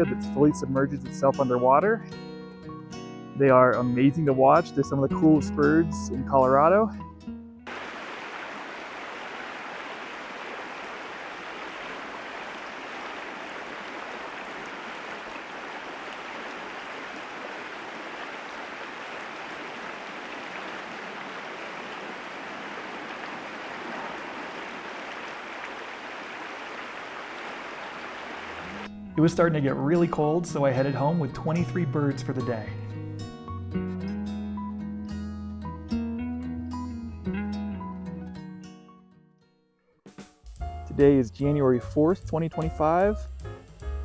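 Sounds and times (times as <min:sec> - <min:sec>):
river rushing over rocks: 0:07.7 - 0:28.9.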